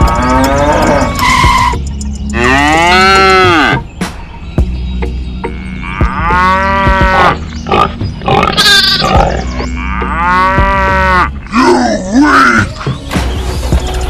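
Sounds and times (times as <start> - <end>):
cow mooing: 2.4 - 3.8, 5.5 - 12.0.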